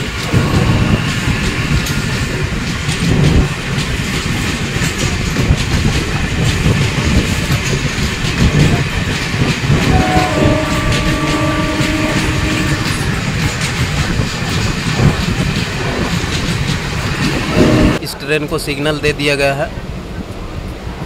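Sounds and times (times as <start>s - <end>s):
train wheels clattering over rail joints: 0.0s - 18.0s
steady tones: 9.8s - 14.0s.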